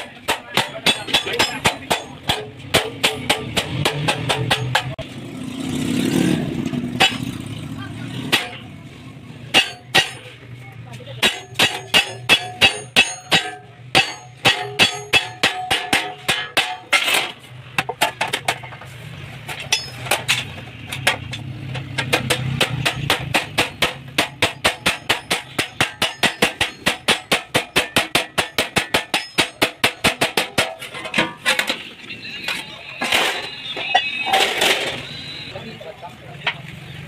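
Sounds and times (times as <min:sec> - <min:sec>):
hammer on sheet metal: 0:00.0 - 0:05.0, 0:06.8 - 0:07.5, 0:08.2 - 0:08.7, 0:09.5 - 0:10.3, 0:11.1 - 0:18.6, 0:19.6 - 0:31.8.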